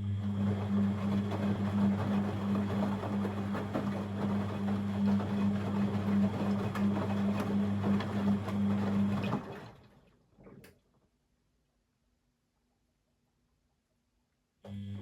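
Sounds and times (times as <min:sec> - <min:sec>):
washing machine running: 0:00.0 - 0:10.7, 0:14.8 - 0:15.0.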